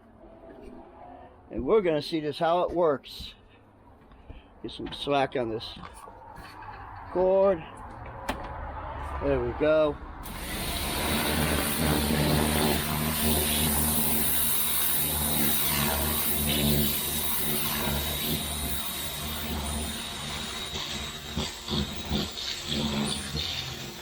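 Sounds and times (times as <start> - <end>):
pressure washer pump humming: 10.2 - 24.0
water jet spraying on deck: 10.2 - 24.0.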